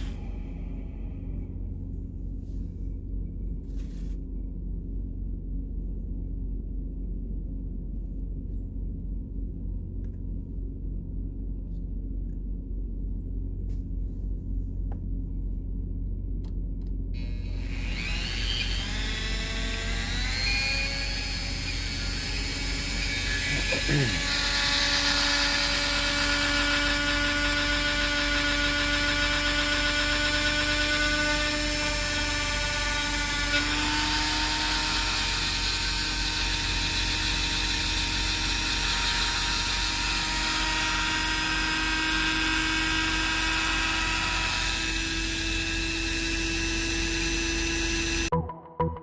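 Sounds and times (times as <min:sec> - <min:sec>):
rotary tool whining: 0:00.0 - 0:01.5, 0:17.2 - 0:48.3.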